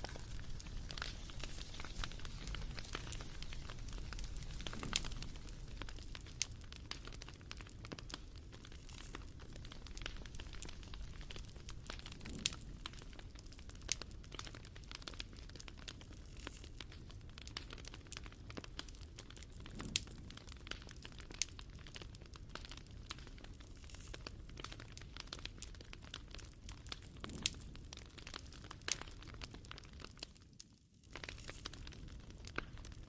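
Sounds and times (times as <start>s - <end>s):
low rumble of burning: 0.0s - 33.0s
wood fire crackling and popping: 0.0s - 33.0s.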